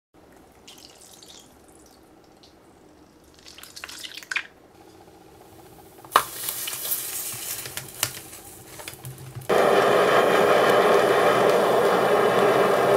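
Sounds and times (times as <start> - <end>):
loud sizzling hiss: 9.5 - 12.9.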